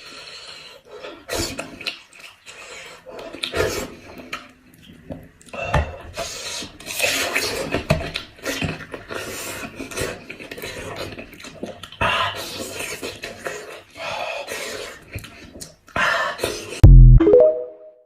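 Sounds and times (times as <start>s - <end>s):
gnawing and chewing: 6.3s - 16.0s.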